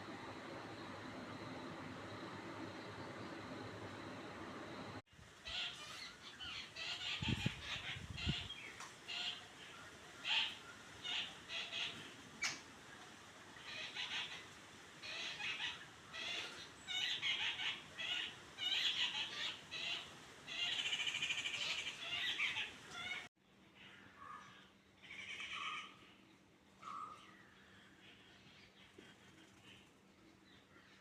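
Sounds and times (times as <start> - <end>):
birds calling shrilly: 13.6 - 26.2.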